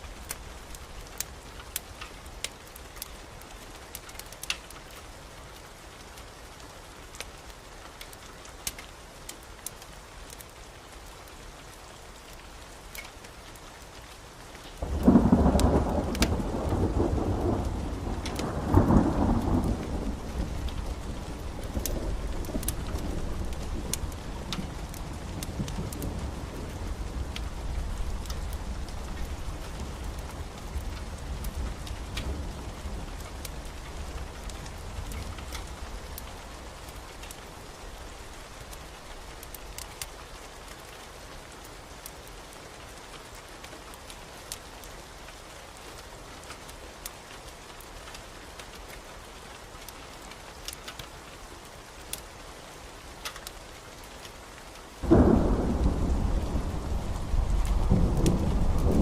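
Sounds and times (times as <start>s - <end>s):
steady rain: 0.0s - 59.0s
thunder rumbling: 14.8s - 38.6s, 55.0s - 59.0s
loud thunderclap: 55.0s - 59.0s.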